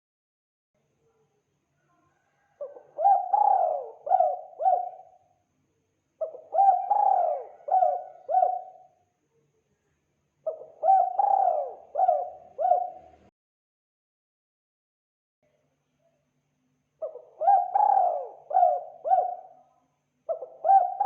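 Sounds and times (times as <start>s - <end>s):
dove cooing: 2.1s - 5.2s, 6.2s - 8.9s, 10.4s - 13.3s, 17.0s - 19.6s, 20.3s - 21.0s.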